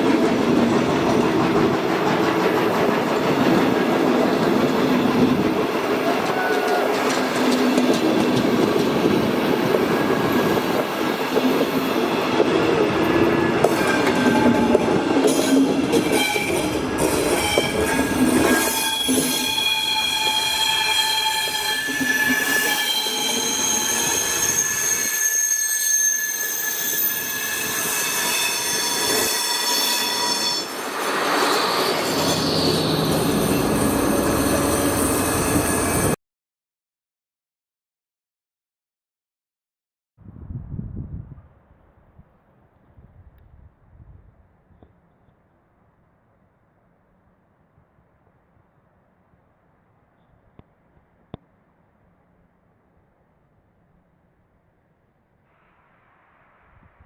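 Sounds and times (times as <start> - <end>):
train wheels clattering over rails: 0.0 - 20.8
wheels squealing: 9.8 - 36.2.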